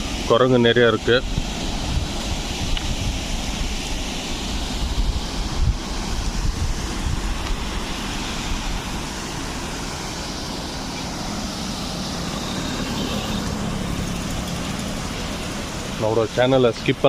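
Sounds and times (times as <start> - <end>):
water pouring from dam: 0.0 - 17.0
wind buffeting microphone: 0.9 - 12.8.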